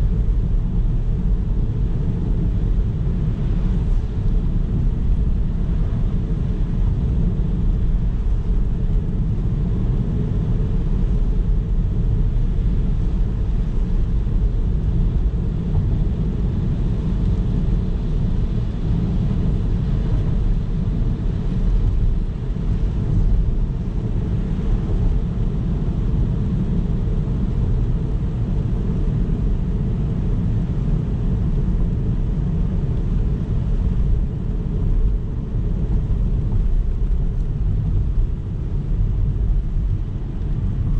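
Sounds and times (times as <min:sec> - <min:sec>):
car road noise and engine: 0:00.0 - 0:40.9.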